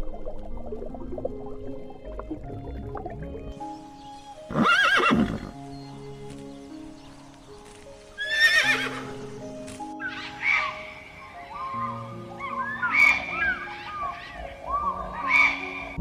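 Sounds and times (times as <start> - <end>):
background music with held notes: 0.0 - 16.0
horse whinnying: 4.5 - 5.6, 8.2 - 9.2.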